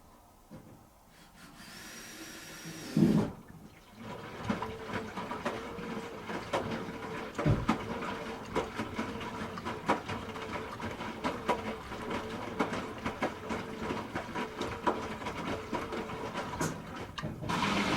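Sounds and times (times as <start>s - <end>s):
washing machine motor hum: 2.1s - 17.9s
washing machine clicks and knocks: 6.6s - 8.0s.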